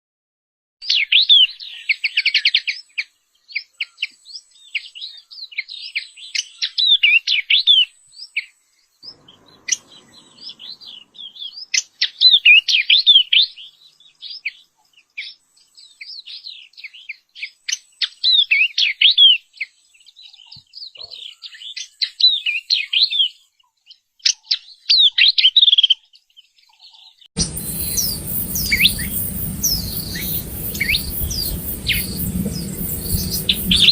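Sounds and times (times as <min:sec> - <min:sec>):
bird singing whistled notes: 0:00.8 - 0:23.5, 0:27.4 - 0:33.9
background hiss: 0:27.4 - 0:33.9.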